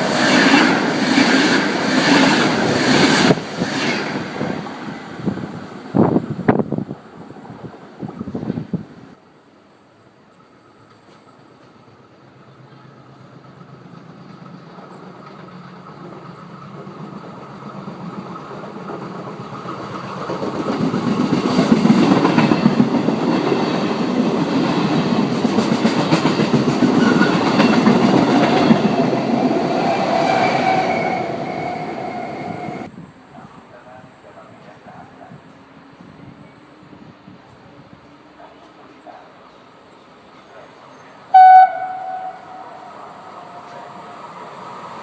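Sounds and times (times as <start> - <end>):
train passing through station: 0.0 - 45.0
steady high tone: 41.4 - 43.4.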